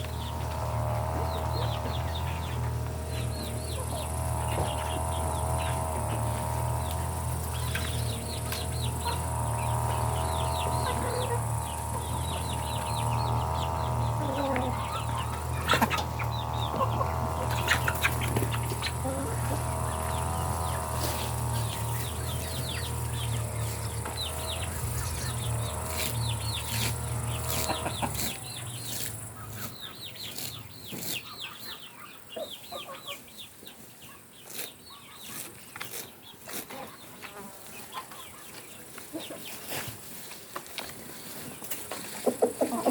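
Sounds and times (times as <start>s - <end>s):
low hum: 0.0s - 29.6s
chickens clucking: 0.0s - 42.9s.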